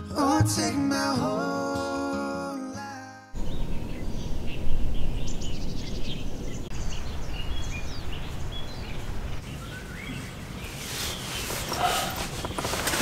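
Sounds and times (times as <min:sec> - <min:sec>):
wind buffeting microphone: 0:03.4 - 0:10.7
birds chirping and whistling: 0:03.4 - 0:12.9.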